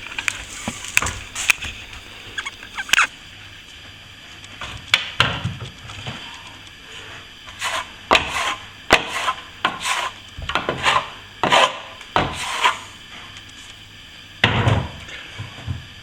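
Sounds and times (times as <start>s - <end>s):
trowel scraping plaster: 0.0s - 3.1s, 7.5s - 12.9s.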